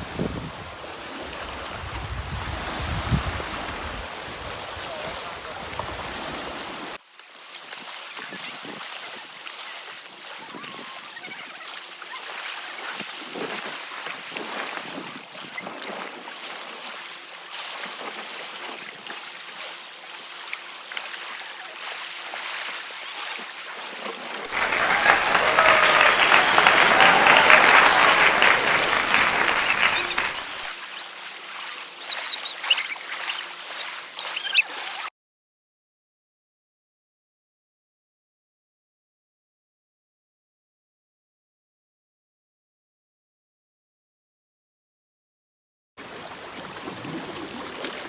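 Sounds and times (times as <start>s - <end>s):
wind rumbling on microphone: 0.0s - 6.6s
small water splashes: 46.0s - 48.0s.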